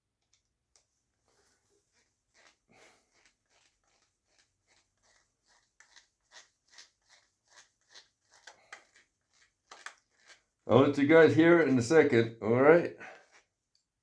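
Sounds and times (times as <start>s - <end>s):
screwdriver rasping clicks: 7.8s - 10.4s.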